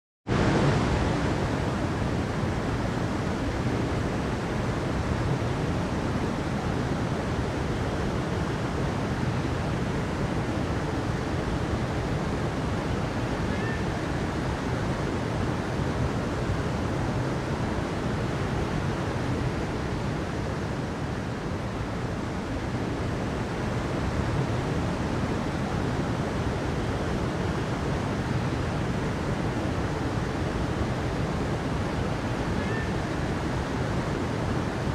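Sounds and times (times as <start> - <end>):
water rushing: 0.3 - 34.9.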